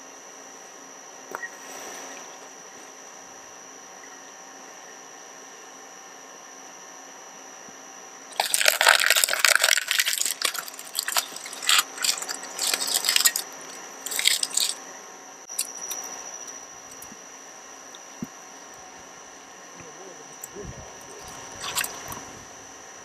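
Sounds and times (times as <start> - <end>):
faint hum: 0.0 - 23.0
shredder crunching plastic: 8.3 - 14.8, 21.1 - 22.2.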